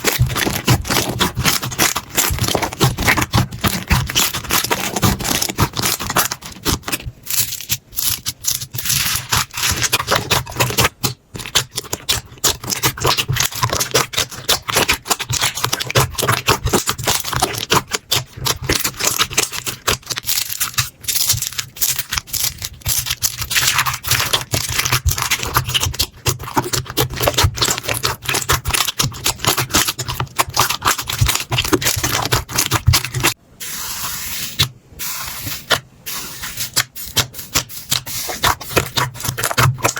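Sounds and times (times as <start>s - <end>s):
slime clicking and popping: 7.6s - 33.4s.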